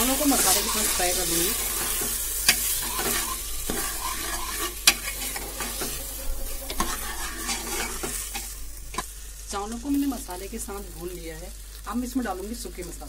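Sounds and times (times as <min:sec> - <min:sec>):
food sizzling in oil: 0:00.0 - 0:13.0
ladle scraping and clinking pot: 0:01.6 - 0:09.0.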